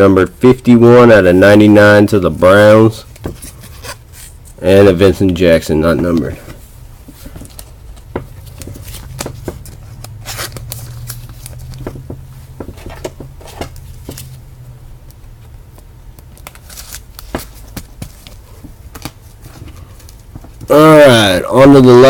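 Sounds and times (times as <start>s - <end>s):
steady low hum: 0.0s - 22.0s
cards shuffled by hand: 5.1s - 14.4s, 15.7s - 20.7s.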